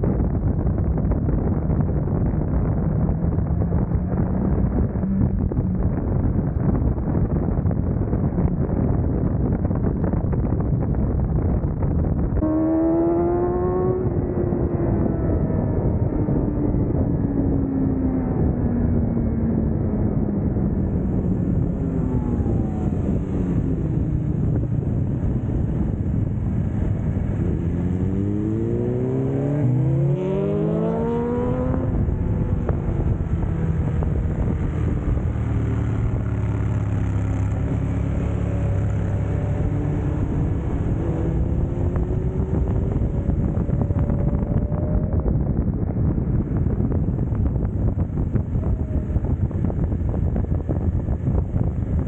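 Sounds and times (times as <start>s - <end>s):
wind noise: 0.0s - 52.0s
motorcycle engine revving: 12.3s - 52.0s.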